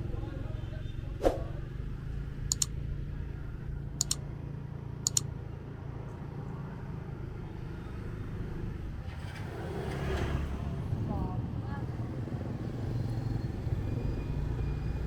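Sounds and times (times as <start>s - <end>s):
motorbike engine humming: 1.7s - 8.0s
sharp double clicks: 2.4s - 2.8s, 4.0s - 4.2s, 5.0s - 5.3s.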